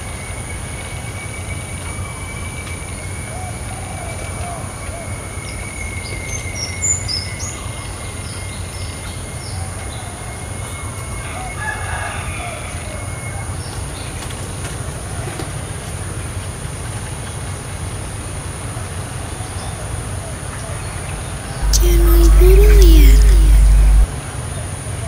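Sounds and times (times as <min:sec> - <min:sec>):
steady low rumble: 0:21.6 - 0:24.1.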